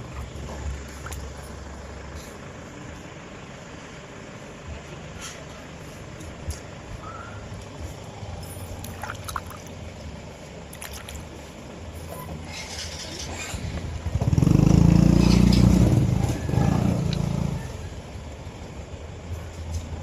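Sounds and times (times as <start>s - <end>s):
low steady hum: 0.0s - 14.2s.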